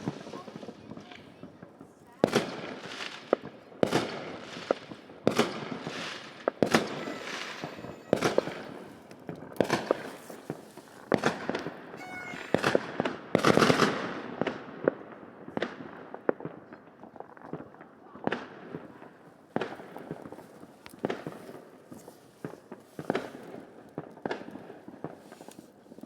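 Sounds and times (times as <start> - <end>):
fireworks banging and crackling: 0.0 - 26.0
short pitched tone: 6.8 - 9.1, 12.0 - 12.7.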